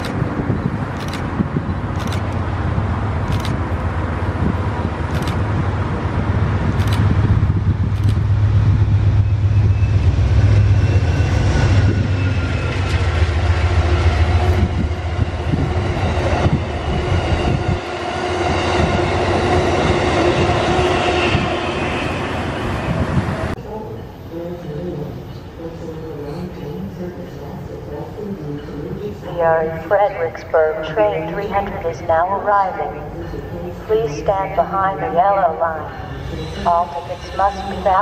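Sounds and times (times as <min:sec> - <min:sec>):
passenger train rumbling past: 0:00.0 - 0:38.0.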